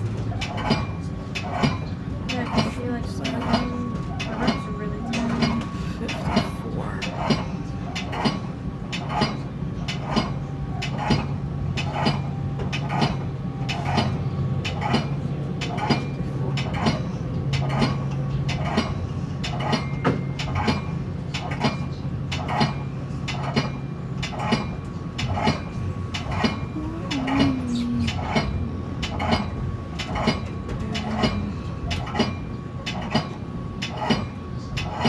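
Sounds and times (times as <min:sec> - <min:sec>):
train wheels clicking over rail joints: 0:00.0 - 0:06.4, 0:07.2 - 0:26.8
low hum of moving train: 0:00.0 - 0:35.0.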